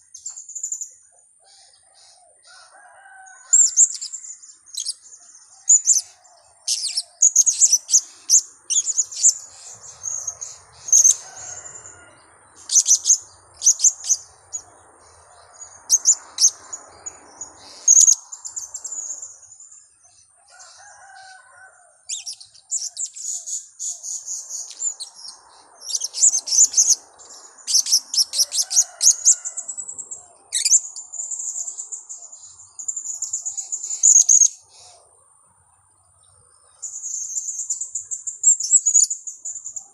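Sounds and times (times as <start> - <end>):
parrots chirping high-pitched: 6.7 - 11.9, 12.6 - 14.2, 15.9 - 16.7, 22.1 - 23.4, 24.6 - 27.0, 27.6 - 29.4.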